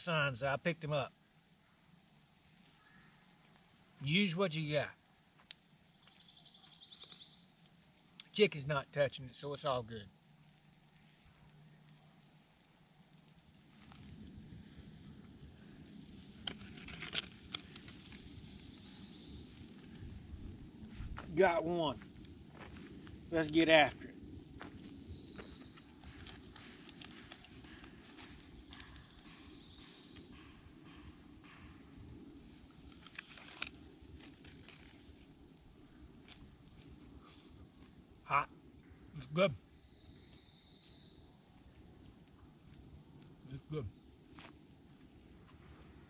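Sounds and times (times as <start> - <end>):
low background hiss: 0.0 - 25.8
campfire burning: 0.2 - 46.0
high-pitched insect drone: 5.7 - 46.0.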